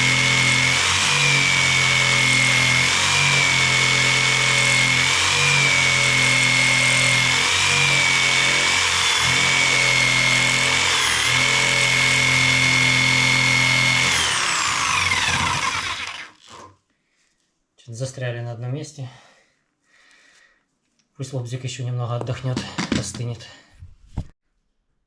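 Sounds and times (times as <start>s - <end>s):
electric jigsaw cutting wood: 0.0s - 16.7s
jigsaw motor spinning down: 0.0s - 16.7s.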